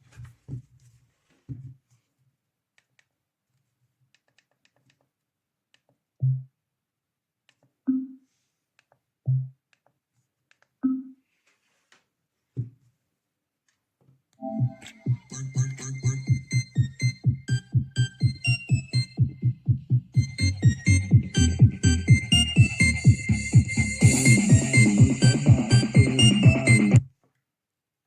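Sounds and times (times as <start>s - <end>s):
music: 14.4s - 27.1s.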